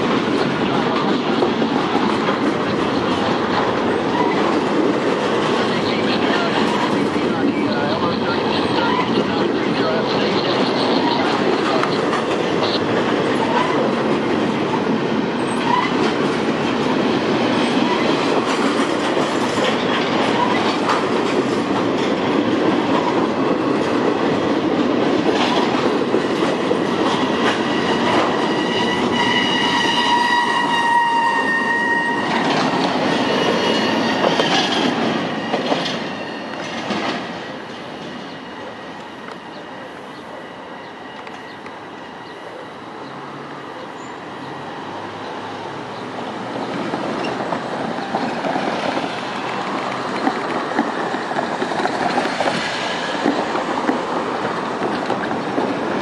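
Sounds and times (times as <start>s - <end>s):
freight train rumble: 0.0s - 56.0s
train wheels clattering over rail joints: 10.6s - 30.3s, 32.3s - 38.2s, 45.9s - 56.0s.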